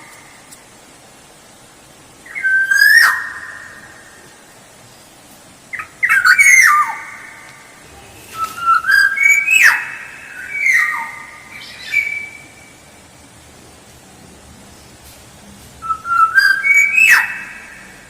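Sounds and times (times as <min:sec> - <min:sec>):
oriole singing whistled phrases: 0:02.2 - 0:03.4, 0:05.8 - 0:07.1, 0:08.2 - 0:12.7, 0:15.8 - 0:17.9.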